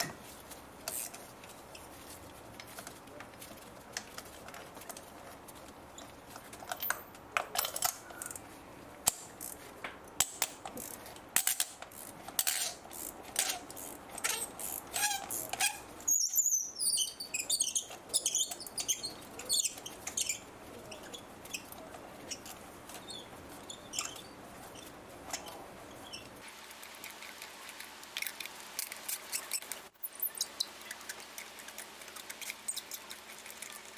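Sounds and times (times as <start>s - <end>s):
ratchet clicking: 10.2s - 15.8s
spark plugs squeaking: 11.9s - 26.4s, 28.2s - 33.8s.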